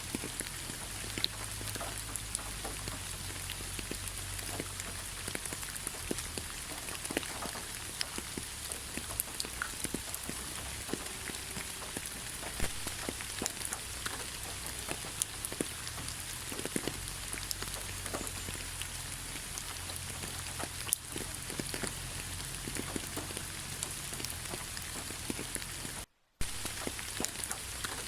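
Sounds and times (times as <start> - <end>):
rain falling: 0.0 - 28.0
drops tapping and pattering: 19.5 - 28.0.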